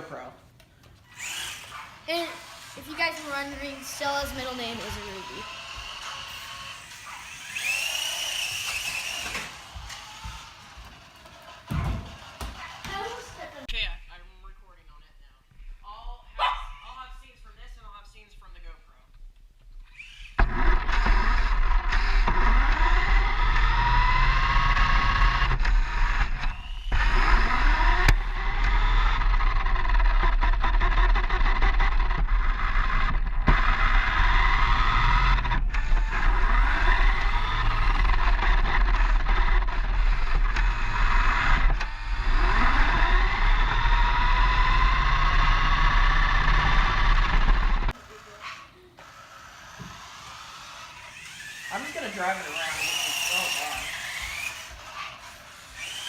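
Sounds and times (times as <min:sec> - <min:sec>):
electric motor whining: 0:01.0 - 0:13.7, 0:19.8 - 0:56.0.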